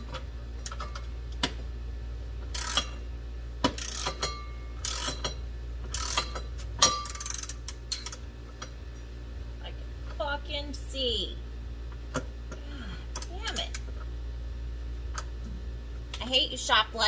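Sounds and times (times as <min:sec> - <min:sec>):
ratchet wrench clicking: 0:02.5 - 0:03.0, 0:03.6 - 0:08.2.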